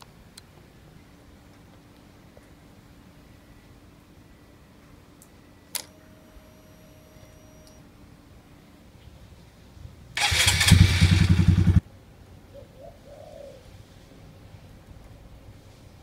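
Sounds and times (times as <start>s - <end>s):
motorcycle engine starting: 10.2s - 11.8s
pigeon cooing: 12.5s - 13.7s.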